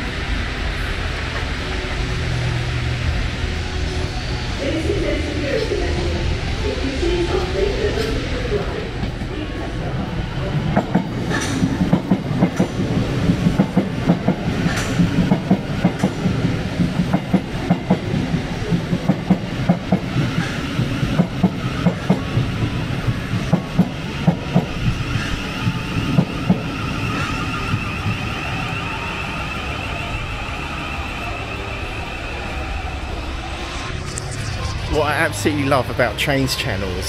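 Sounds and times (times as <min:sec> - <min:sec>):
steady low rumble: 0:00.0 - 0:15.2, 0:31.0 - 0:37.0
train wheels clattering over joints: 0:10.5 - 0:29.8
wavering high-pitched tone: 0:22.7 - 0:37.0.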